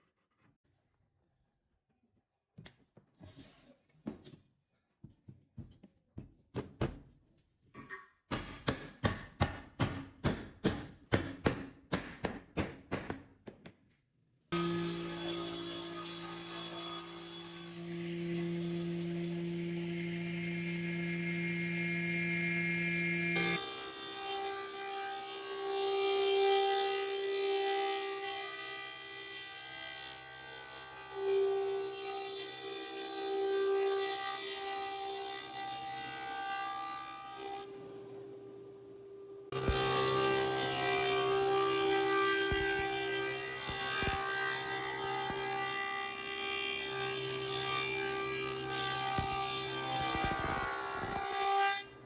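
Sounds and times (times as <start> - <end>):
electric motor whine: 14.6 - 24.4, 39.5 - 51.8.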